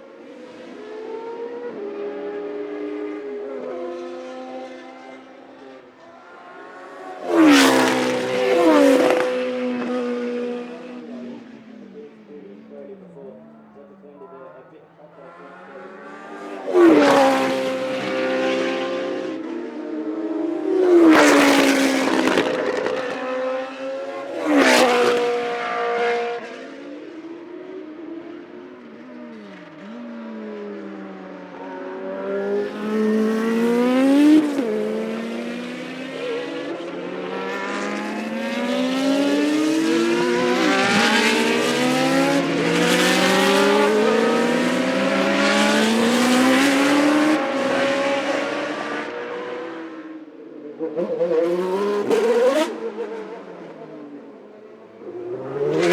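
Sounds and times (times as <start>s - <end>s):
racing engine accelerating through gears: 7.2s - 11.0s, 16.0s - 26.7s, 29.4s - 50.1s, 50.8s - 53.7s, 55.1s - 55.9s.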